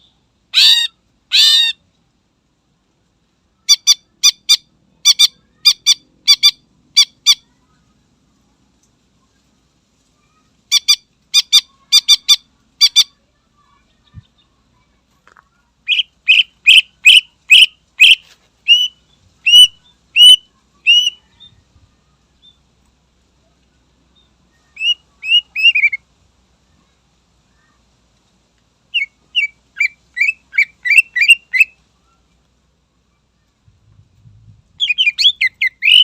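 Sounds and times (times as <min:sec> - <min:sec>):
bird singing loudly: 0:00.5 - 0:01.8, 0:15.9 - 0:21.5, 0:24.8 - 0:26.0, 0:28.9 - 0:31.8, 0:34.8 - 0:36.0.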